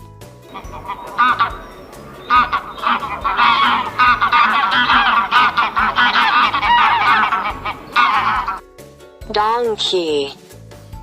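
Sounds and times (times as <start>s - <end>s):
geese honking: 0.5s - 8.6s.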